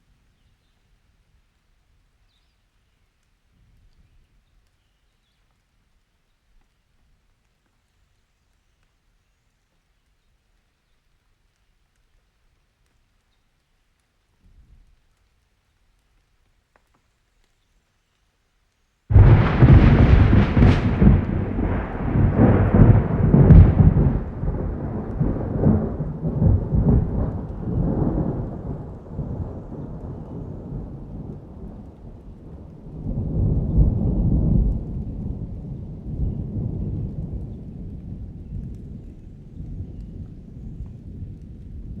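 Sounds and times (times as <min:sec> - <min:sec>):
thunderclap and rumbling thunder: 0:19.1 - 0:42.0.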